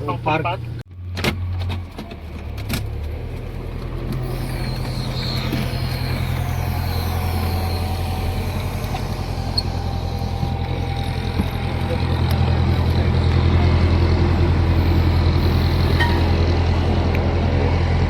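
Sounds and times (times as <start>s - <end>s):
towing tractor engine humming: 0.0s - 18.0s.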